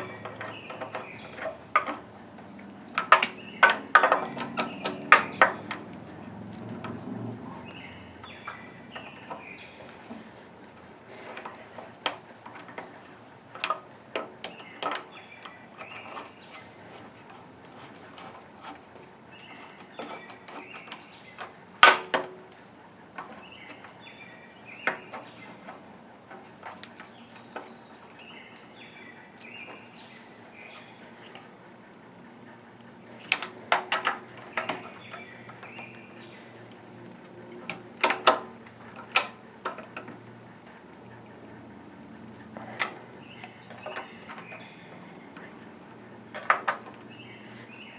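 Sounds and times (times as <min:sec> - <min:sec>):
clicks and knocks of hand tools: 0:00.0 - 0:24.1, 0:24.7 - 0:28.7, 0:33.1 - 0:40.3, 0:42.5 - 0:44.7, 0:45.3 - 0:47.2
birds chirping: 0:00.0 - 0:47.9.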